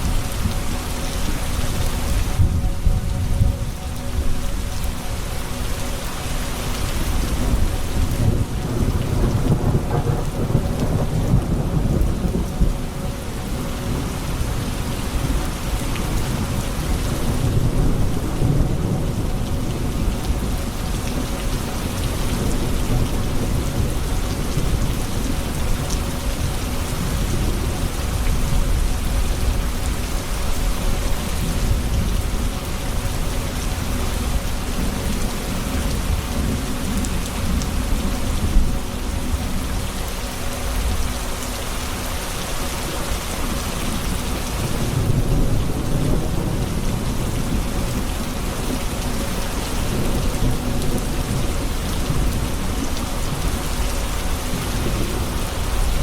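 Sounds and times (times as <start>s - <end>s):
heavy rain on hard surfaces: 0.0s - 56.0s
rolling thunder: 7.4s - 12.8s.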